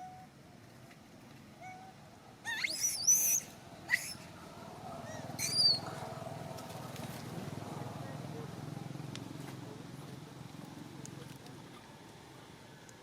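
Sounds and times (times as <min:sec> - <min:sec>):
baby monkey squealing: 0:02.5 - 0:04.3, 0:05.1 - 0:05.8.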